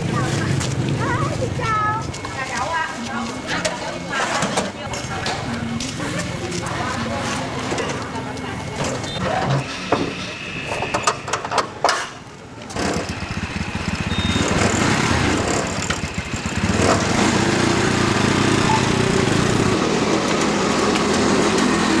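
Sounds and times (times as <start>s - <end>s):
small engine running: 12.7s - 22.0s.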